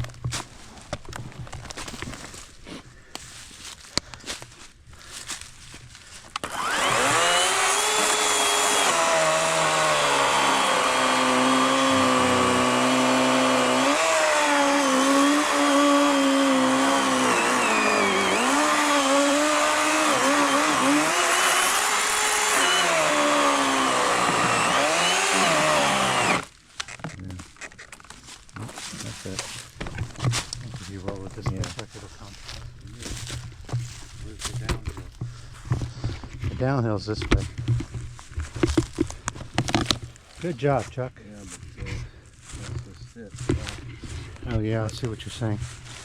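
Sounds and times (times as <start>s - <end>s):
electric chainsaw cutting log: 6.4s - 26.5s.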